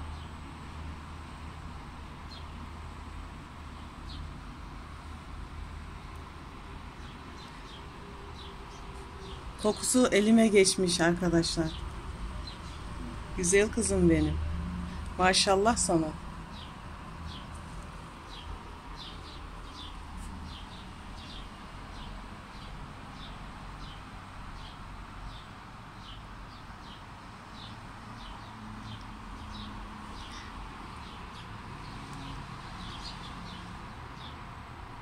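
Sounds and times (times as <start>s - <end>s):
small bird chirping: 27.6s - 34.3s.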